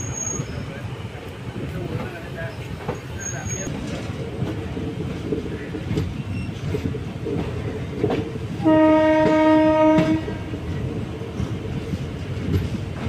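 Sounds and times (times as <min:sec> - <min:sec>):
train wheels rumbling on track: 0:00.0 - 0:13.0
locomotive horn: 0:08.6 - 0:10.5.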